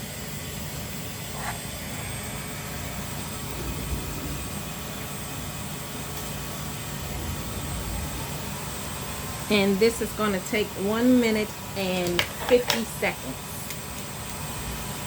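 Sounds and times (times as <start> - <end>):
faint high whine: 0.0 - 11.8
laser engraver fans humming: 0.0 - 15.0.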